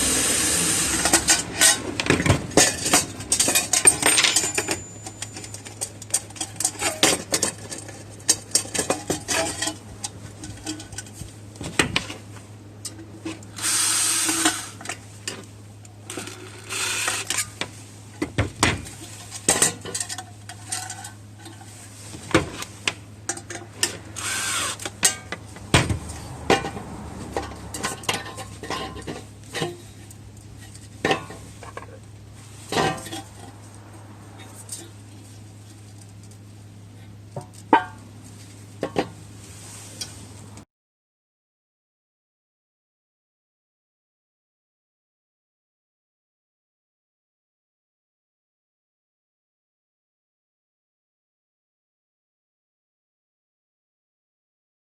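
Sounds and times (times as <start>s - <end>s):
metal parts clinking: 2.6s - 7.8s.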